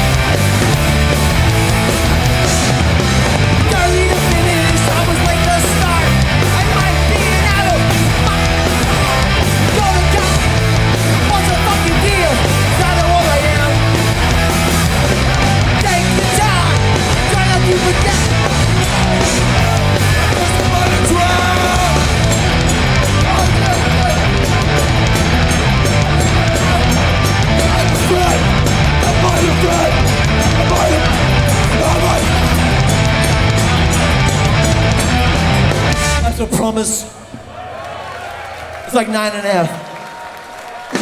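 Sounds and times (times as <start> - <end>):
punk band playing live: 0.0 - 37.6
shouted vocals: 3.6 - 34.3.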